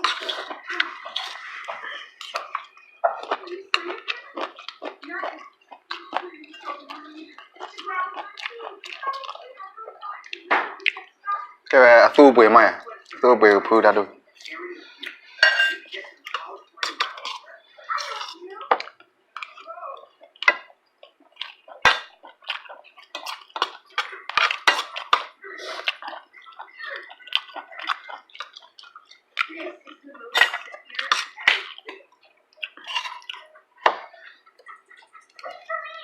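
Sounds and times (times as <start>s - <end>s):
cutlery clinking on dishes: 0.0s - 9.4s, 15.1s - 19.6s, 20.4s - 29.6s, 30.3s - 35.7s
wet chewing and slurping: 0.0s - 11.2s, 14.3s - 36.0s.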